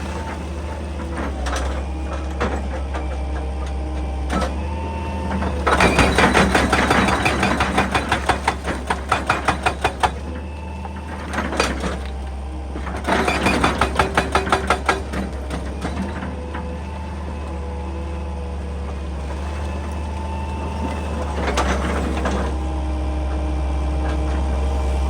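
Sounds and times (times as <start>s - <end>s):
diesel engine running: 0.0s - 25.0s
hydraulic breaker hammering rock: 5.3s - 12.1s, 12.8s - 16.3s.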